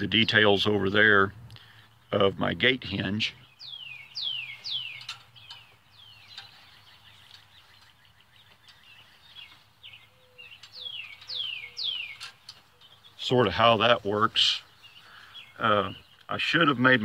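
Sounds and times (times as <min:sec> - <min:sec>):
songbird whistling: 0:03.4 - 0:13.2.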